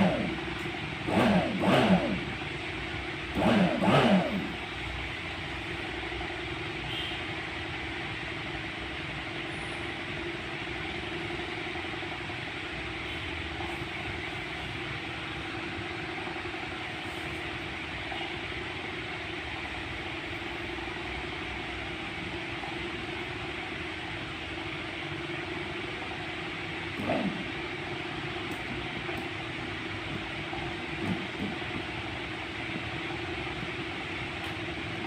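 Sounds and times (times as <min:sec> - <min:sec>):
motor hum: 0:00.0 - 0:05.9, 0:26.7 - 0:35.0.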